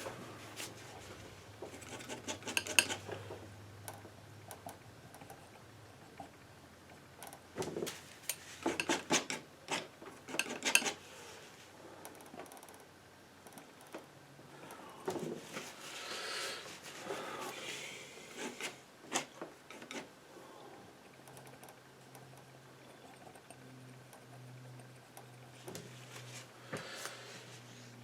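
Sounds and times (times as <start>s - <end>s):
painting knife scraping paint: 1.7s - 3.1s, 8.3s - 11.1s, 18.3s - 20.1s.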